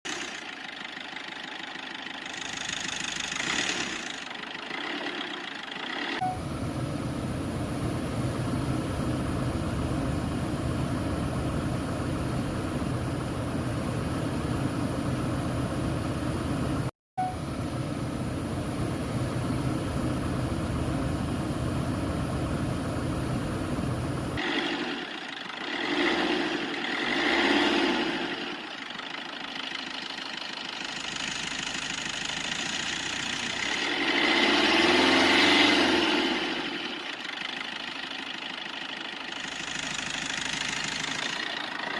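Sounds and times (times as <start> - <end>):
car engine running: 0.0 - 41.9.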